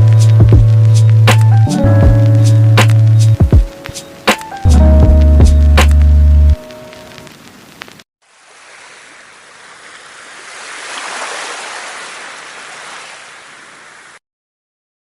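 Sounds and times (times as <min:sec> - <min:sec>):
sea surf washing: 0:06.6 - 0:14.2.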